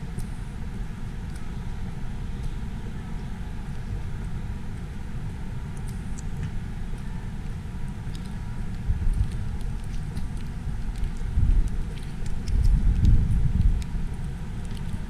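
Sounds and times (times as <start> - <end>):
wind buffeting microphone: 11.2 - 15.0.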